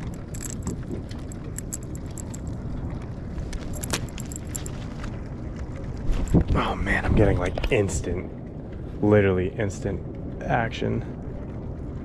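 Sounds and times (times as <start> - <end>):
fishing tackle clicking and jingling: 0.0 - 2.6, 3.5 - 4.9
wind and water rumble: 0.0 - 12.0.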